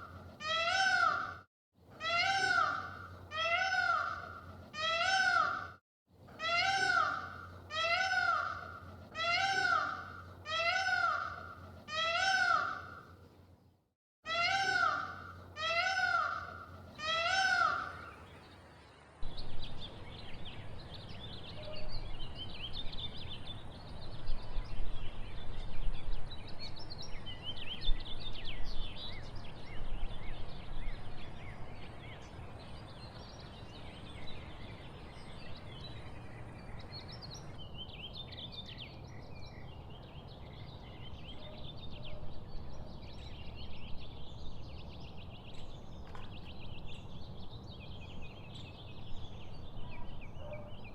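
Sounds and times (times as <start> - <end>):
small birds chirping and singing: 14.4 - 50.9.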